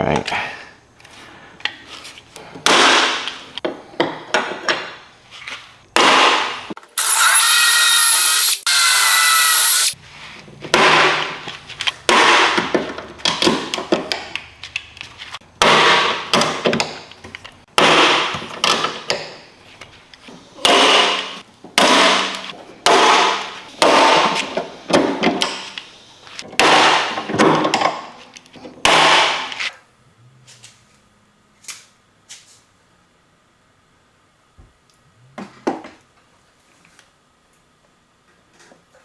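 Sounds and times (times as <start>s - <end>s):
power tool whine: 6.9s - 10.0s.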